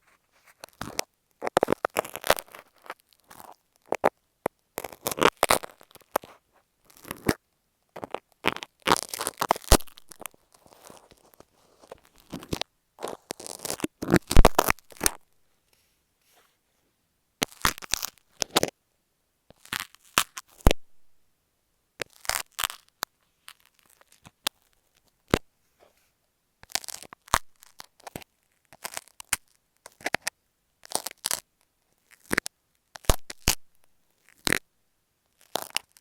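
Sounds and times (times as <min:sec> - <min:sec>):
tape scratching against microphone: 0:08.0 - 0:15.2.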